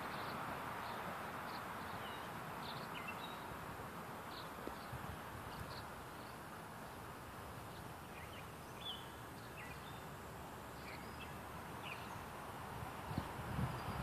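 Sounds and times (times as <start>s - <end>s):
steady outdoor hiss: 0.0s - 14.0s
distant birds chirping: 4.2s - 12.4s.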